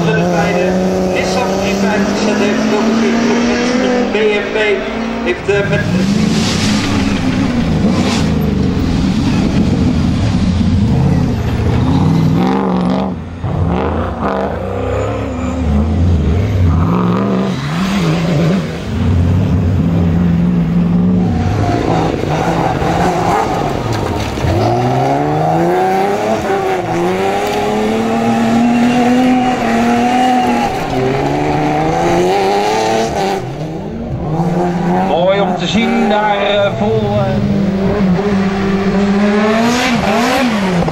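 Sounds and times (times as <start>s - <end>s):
rally car engines revving: 0.0s - 40.9s.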